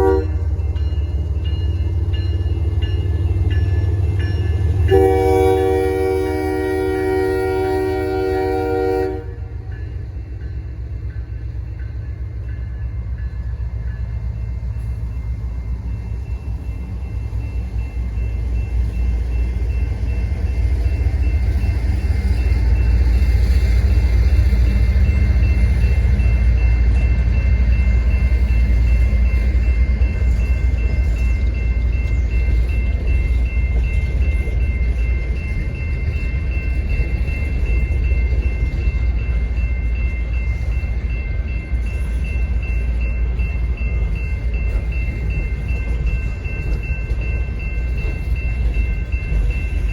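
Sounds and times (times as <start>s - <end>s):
locomotive air horn chord: 0.0s - 0.4s, 4.9s - 9.5s.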